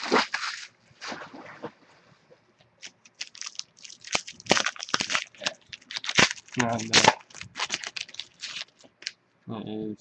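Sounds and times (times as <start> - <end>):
cards rustling: 2.8 - 9.1.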